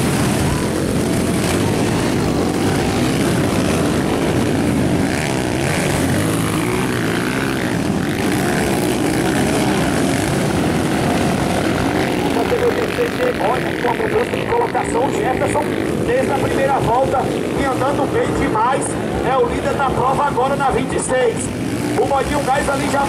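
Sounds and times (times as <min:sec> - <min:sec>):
motorcycle engines revving: 0:00.0 - 0:23.0.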